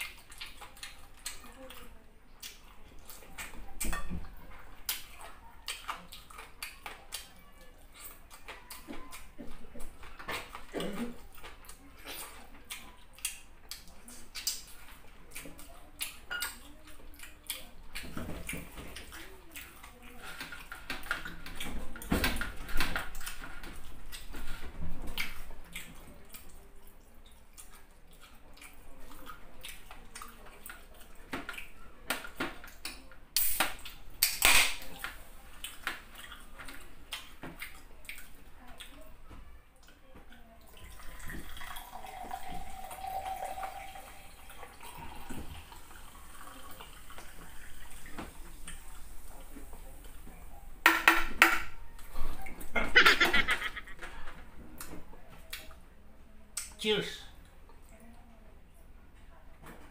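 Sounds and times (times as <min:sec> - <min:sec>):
chewing with wet clicks: 0:00.0 - 0:03.9, 0:04.7 - 0:22.1, 0:23.0 - 0:24.4, 0:25.0 - 0:34.4, 0:35.0 - 0:41.2, 0:54.8 - 0:55.8
soda pouring into glass: 0:40.9 - 0:48.1.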